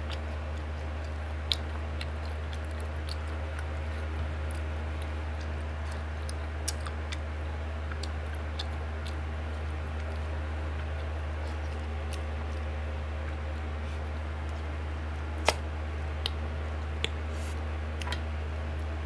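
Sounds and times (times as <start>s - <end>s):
steady low hum: 0.0s - 19.0s
wet chewing clicks and smacks: 0.0s - 19.0s.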